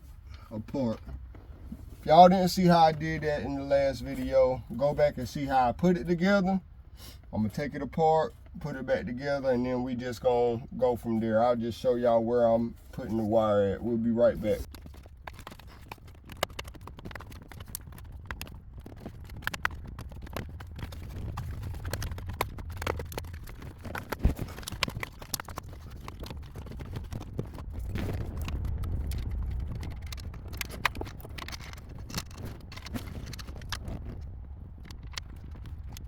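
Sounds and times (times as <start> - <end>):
low rumble: 18.5 - 36.0.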